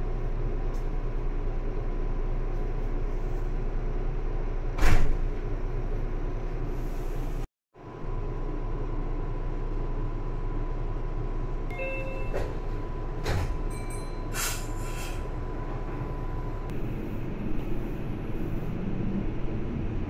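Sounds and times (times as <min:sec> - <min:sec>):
train humming: 0:05.4 - 0:20.0.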